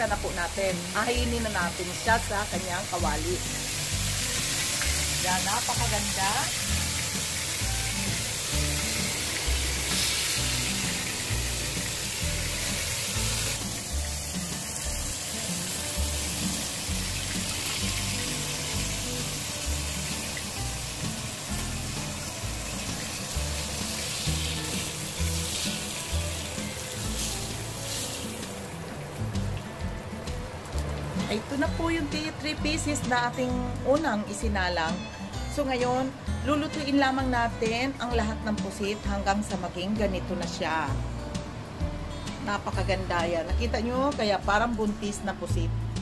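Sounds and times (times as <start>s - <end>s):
squid sizzling in hot oil: 0.2s - 31.3s.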